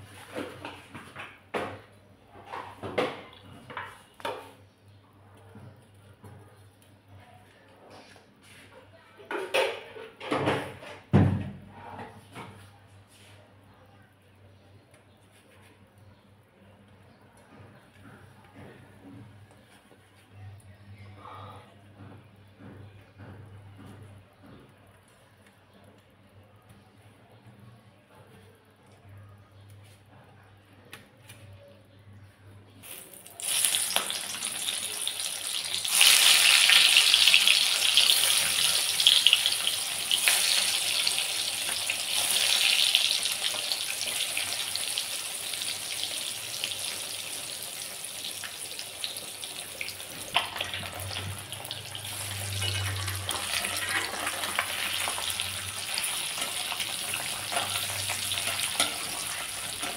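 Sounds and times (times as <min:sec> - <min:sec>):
eggs sizzling in hot oil: 0:32.8 - 0:59.9.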